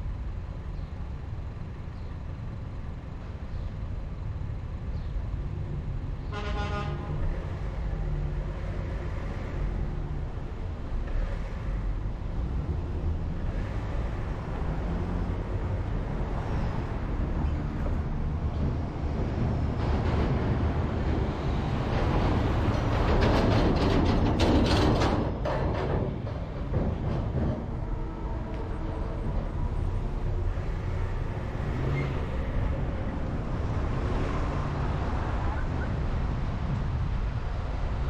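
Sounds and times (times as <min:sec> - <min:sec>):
car engine and road rumble: 0:00.0 - 0:38.0
car horn honk: 0:06.3 - 0:07.1.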